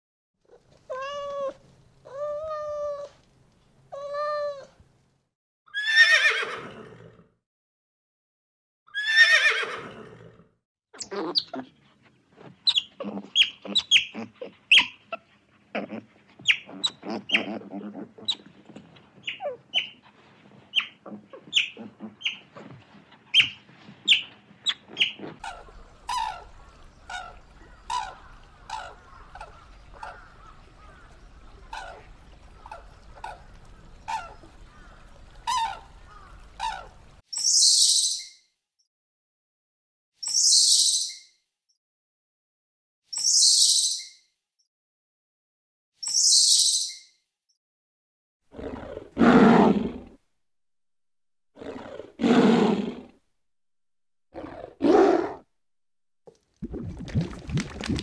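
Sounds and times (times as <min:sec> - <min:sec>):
sea otters squeaking and chirping: 0:12.7 - 0:15.0, 0:19.2 - 0:20.0, 0:23.4 - 0:30.2, 0:40.2 - 0:41.2, 0:46.0 - 0:47.0.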